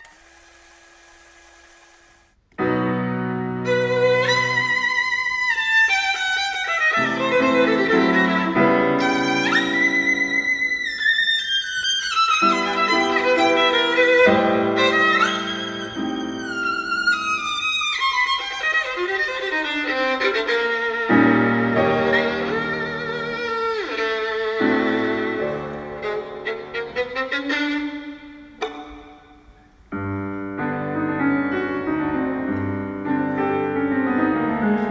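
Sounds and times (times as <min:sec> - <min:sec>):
violin slow melody: 0:03.4 - 0:29.6.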